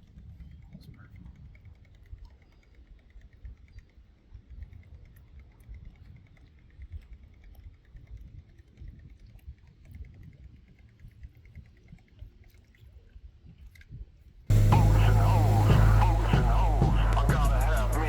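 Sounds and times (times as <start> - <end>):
low uneven rumble: 14.5 - 18.0.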